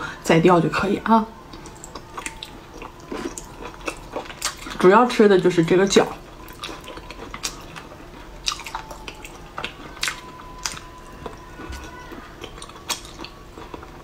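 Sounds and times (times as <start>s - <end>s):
wet chewing mouth clicks: 1.5s - 4.8s, 6.4s - 13.9s.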